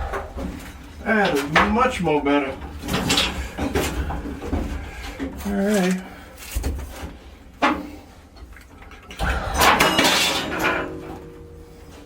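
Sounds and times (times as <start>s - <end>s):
tools clattering: 1.2s - 6.7s, 8.8s - 12.0s.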